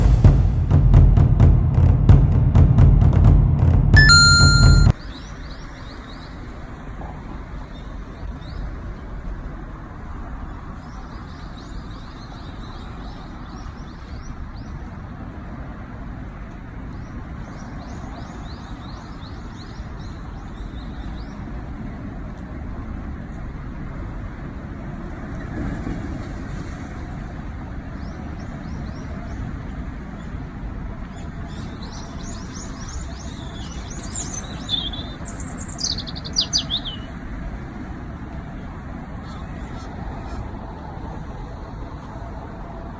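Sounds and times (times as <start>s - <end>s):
songbirds chirping: 31.1s - 37.2s.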